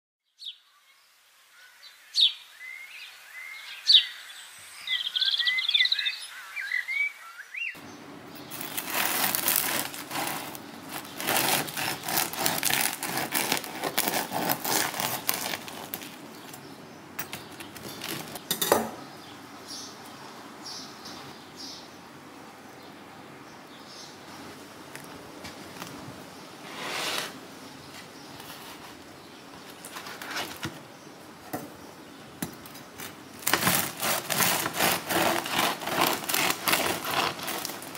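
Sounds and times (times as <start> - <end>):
birds chirping: 1.6 - 26.7, 27.4 - 37.9
knife sawing crunchy bread crust: 8.5 - 16.6, 17.4 - 18.5, 29.9 - 30.7, 33.0 - 37.9.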